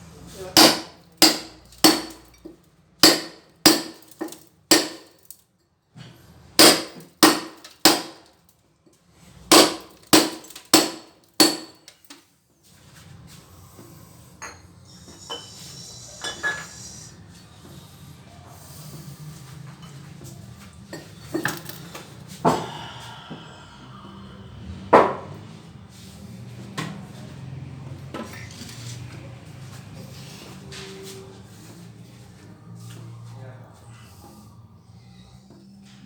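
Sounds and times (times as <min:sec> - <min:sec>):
hammer striking a chisel: 0:00.6 - 0:02.4, 0:03.0 - 0:05.1, 0:06.6 - 0:08.2, 0:09.5 - 0:12.0.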